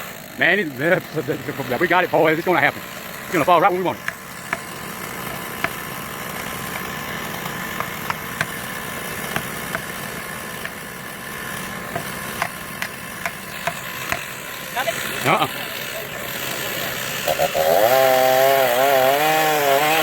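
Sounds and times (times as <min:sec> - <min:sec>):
engine idling: 0:00.0 - 0:17.4.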